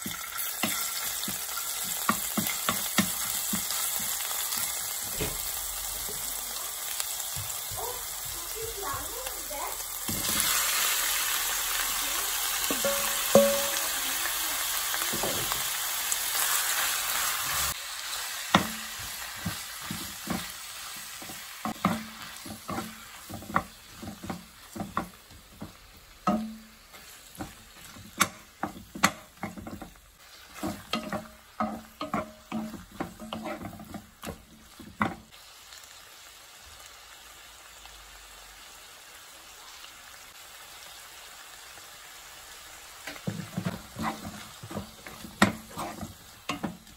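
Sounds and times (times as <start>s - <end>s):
squid sizzling in hot oil: 0.0s - 46.9s
utensil scraping a wok: 18.5s - 35.3s, 43.2s - 46.9s.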